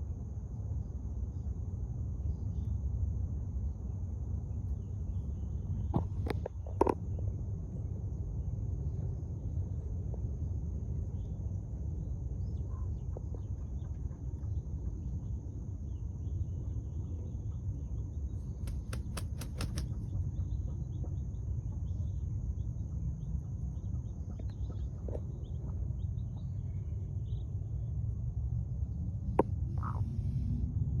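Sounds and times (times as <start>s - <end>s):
faint bird chirps: 12.4s - 27.5s
insect drone: 18.1s - 20.2s
sharp clicks: 18.7s - 20.0s.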